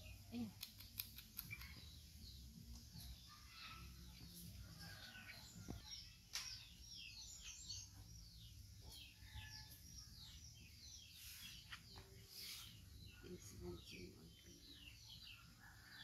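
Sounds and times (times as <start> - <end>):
faint bird chirping: 0.0 - 16.0
sharp click: 0.5 - 1.8.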